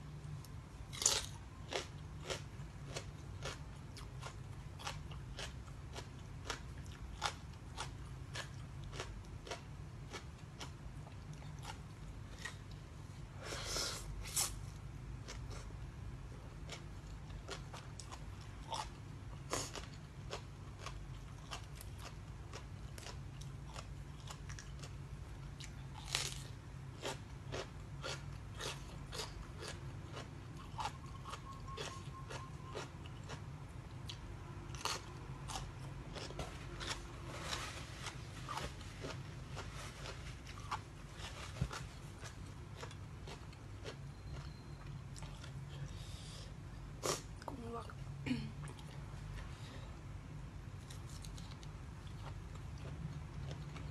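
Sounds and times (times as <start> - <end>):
steady low hum: 0.0 - 53.9
person chewing crisp food: 0.2 - 47.4, 50.6 - 53.9.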